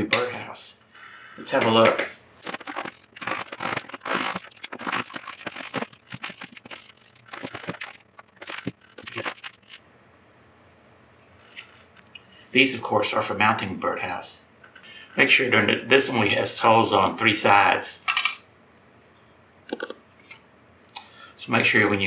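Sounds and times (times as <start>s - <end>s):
packaging crinkling and tearing: 2.4s - 9.8s.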